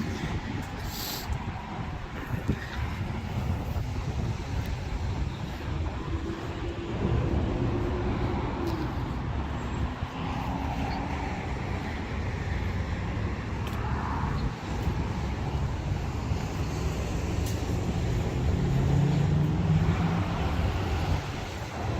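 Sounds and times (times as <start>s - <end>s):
cars passing: 0.0s - 21.9s.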